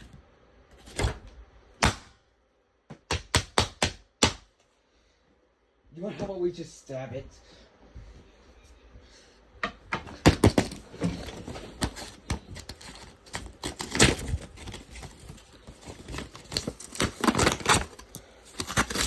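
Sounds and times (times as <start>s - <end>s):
pointed tool puncturing paper: 16.1s - 19.0s.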